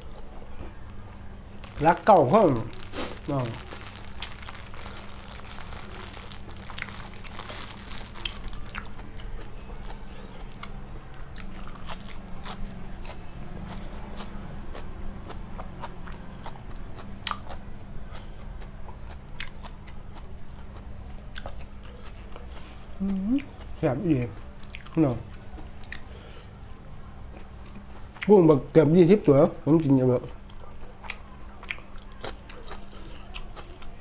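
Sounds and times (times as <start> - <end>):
person chewing crunchy food: 1.6 - 23.8, 30.4 - 34.0.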